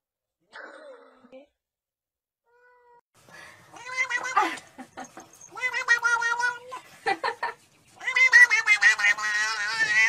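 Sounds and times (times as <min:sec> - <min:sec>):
cat meowing: 0:03.7 - 0:04.5, 0:05.4 - 0:06.8, 0:08.0 - 0:10.0.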